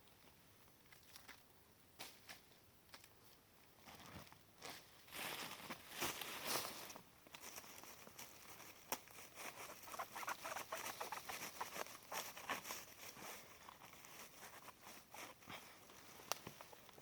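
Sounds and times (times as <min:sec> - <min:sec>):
faint rustling and crackles: 0:00.0 - 0:17.0.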